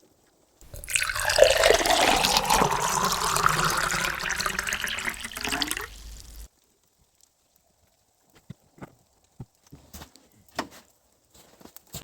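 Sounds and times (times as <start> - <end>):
diesel fuel pouring into tank: 0.7 - 6.5.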